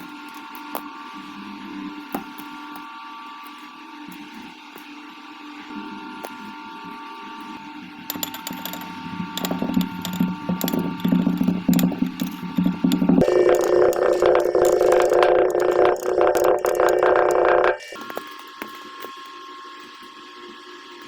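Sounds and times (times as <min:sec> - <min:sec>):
steady low hum: 0:08.1 - 0:18.0.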